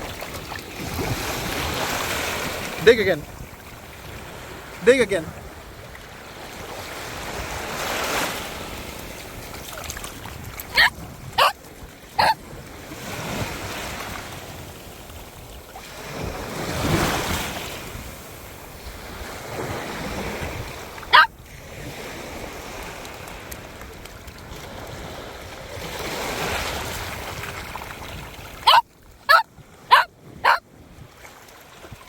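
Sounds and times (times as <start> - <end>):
small waves breaking on shore: 0.0 - 32.0
dog bark: 10.7 - 11.6, 12.2 - 12.4, 21.1 - 21.3, 28.6 - 30.6.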